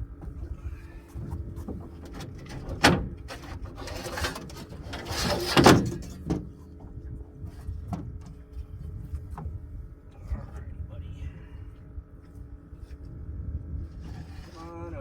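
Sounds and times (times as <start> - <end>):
faint steady hum: 0.0 - 15.0
fish handling knocks and scrapes: 0.2 - 9.7.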